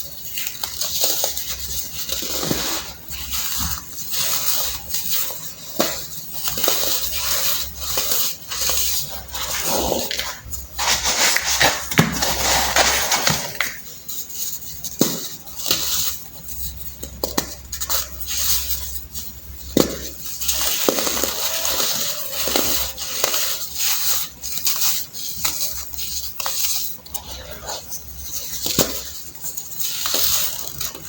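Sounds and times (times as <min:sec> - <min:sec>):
baking soda clumps crunching: 0:00.0 - 0:31.0.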